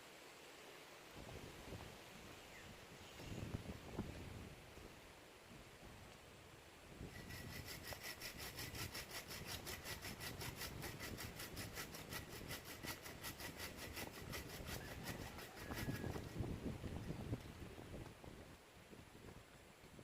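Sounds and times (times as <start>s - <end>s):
hand saw cutting wood: 7.1s - 16.4s.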